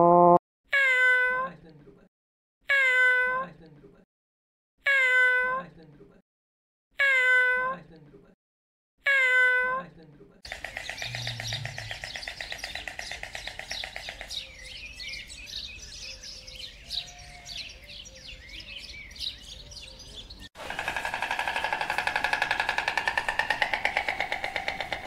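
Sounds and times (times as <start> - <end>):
small birds chirping: 10.5 - 20.5.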